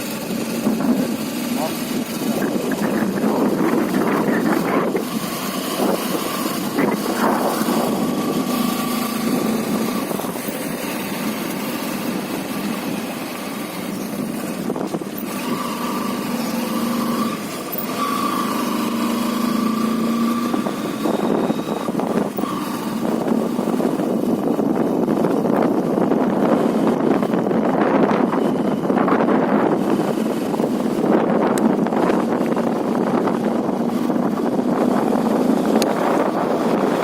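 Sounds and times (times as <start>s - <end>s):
motorcycle engine running: 0.0s - 37.0s
wind noise: 0.0s - 37.0s.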